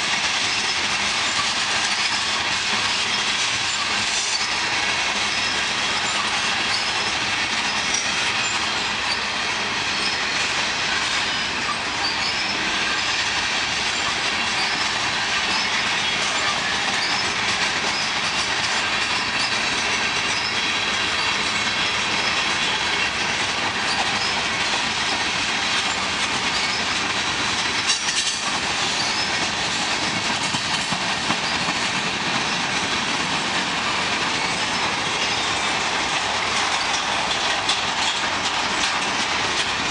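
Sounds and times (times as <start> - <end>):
train wheels rumbling on rails: 0.0 - 39.9
high wheel squeals: 2.8 - 13.4, 14.0 - 25.2, 25.8 - 27.0, 27.9 - 29.5.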